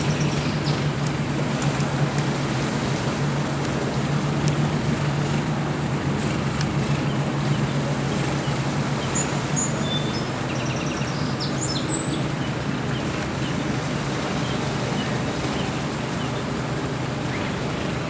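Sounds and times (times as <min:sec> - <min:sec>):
low mechanical drone: 0:00.0 - 0:18.0
small birds chirping: 0:07.0 - 0:13.7.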